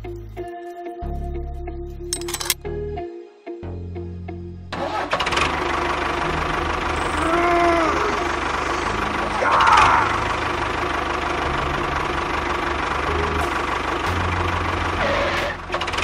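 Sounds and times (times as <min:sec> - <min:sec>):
tractor engine knocking: 0:08.2 - 0:09.3, 0:10.2 - 0:15.0.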